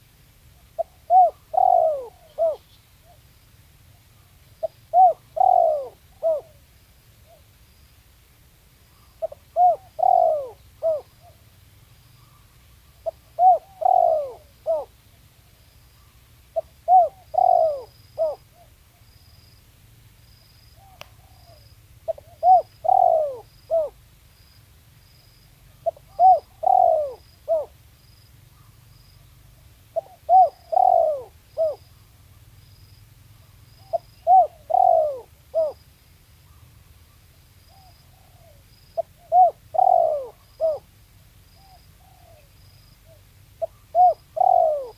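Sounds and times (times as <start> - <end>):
dove cooing: 0.8 - 3.2, 4.6 - 6.6, 9.0 - 11.4, 12.2 - 15.0, 16.0 - 18.8, 20.8 - 24.0, 25.7 - 27.8, 29.9 - 31.9, 33.4 - 35.8, 37.7 - 40.9, 41.6 - 44.9.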